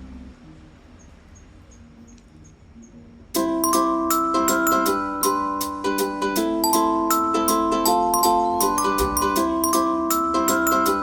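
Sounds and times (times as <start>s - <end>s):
background music: 3.4s - 11.0s.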